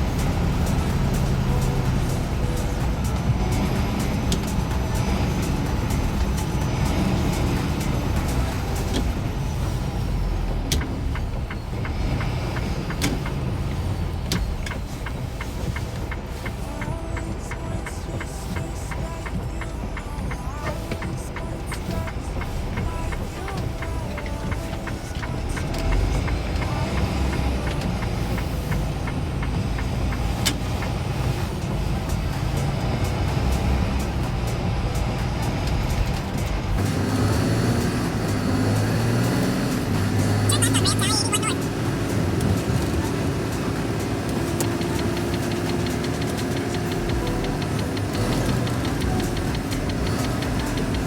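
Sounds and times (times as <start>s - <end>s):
background music with ticking beat: 0.0s - 51.0s
truck engine and road noise: 0.0s - 51.0s
sharp clicks: 35.6s - 51.0s.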